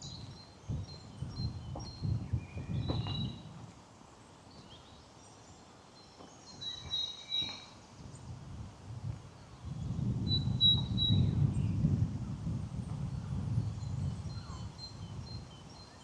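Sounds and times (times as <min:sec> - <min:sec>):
songbirds singing: 0:00.0 - 0:03.5.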